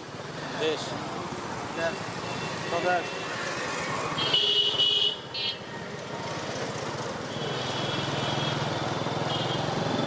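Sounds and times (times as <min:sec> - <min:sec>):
motorcycle engine and road noise: 0:00.0 - 0:10.0
vehicle horn honking: 0:04.2 - 0:05.2.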